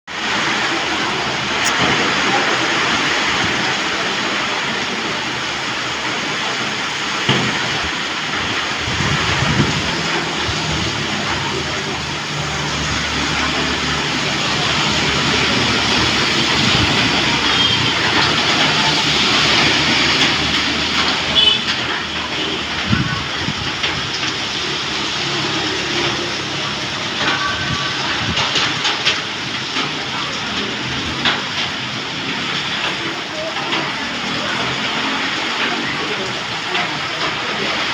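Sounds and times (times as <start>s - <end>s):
heavy rain hissing: 0.1s - 37.9s
wind rumbling: 7.5s - 32.5s.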